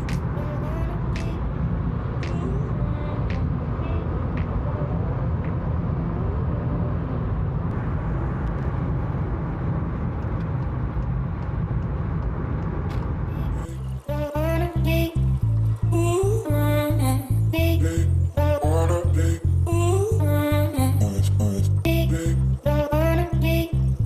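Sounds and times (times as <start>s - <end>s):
music: 0.0s - 1.5s, 13.6s - 24.0s
car cabin road and engine noise: 0.0s - 24.0s.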